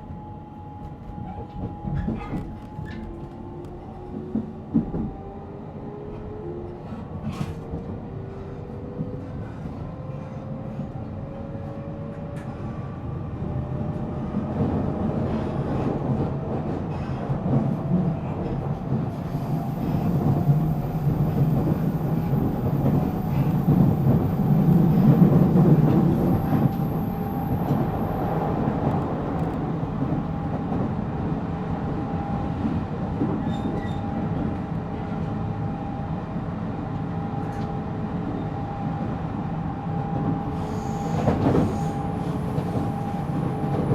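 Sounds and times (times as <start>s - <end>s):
train wheel and track rumble: 0.0s - 43.9s.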